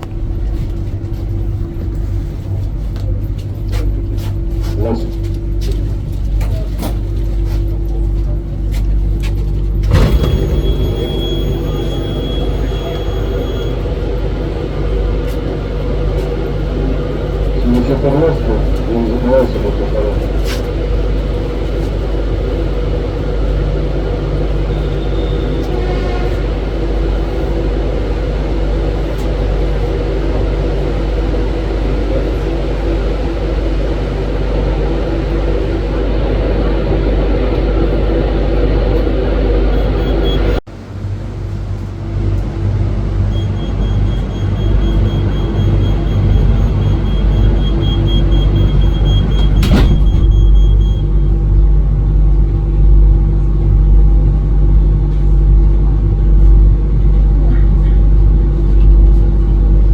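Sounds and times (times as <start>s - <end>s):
train rumbling at speed: 0.0s - 59.9s
sharp knock: 9.8s - 13.4s
steady tones: 9.8s - 40.6s, 42.2s - 52.4s.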